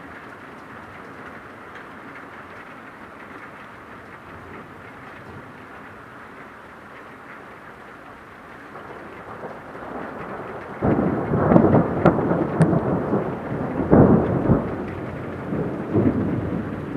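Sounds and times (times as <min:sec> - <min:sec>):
rain hissing: 0:00.0 - 0:16.9
thunder rumbling: 0:08.7 - 0:16.9.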